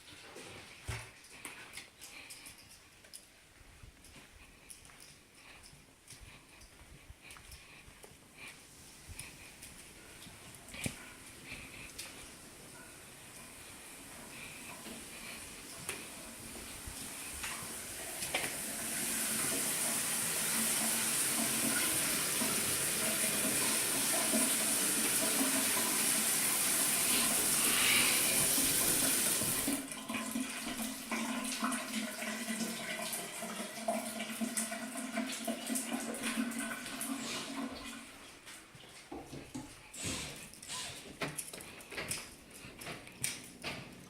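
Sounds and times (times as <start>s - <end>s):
water running through plumbing: 8.4s - 41.1s.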